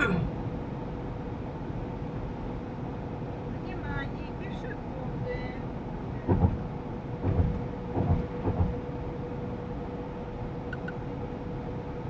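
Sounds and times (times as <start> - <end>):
van driving cabin drone: 0.0 - 12.0
dull thumps: 6.3 - 6.6, 7.2 - 8.8.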